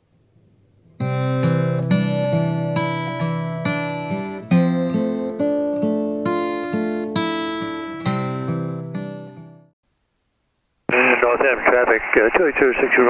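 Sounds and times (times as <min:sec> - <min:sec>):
acoustic guitar chords strummed: 0:00.9 - 0:09.7.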